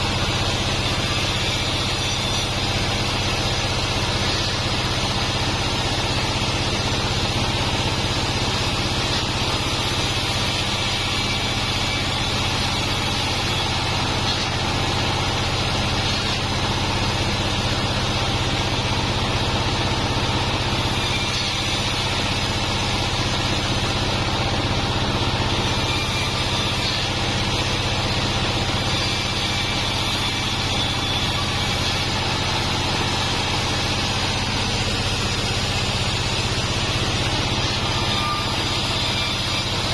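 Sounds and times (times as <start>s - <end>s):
bandsaw machine running: 0.0s - 39.9s.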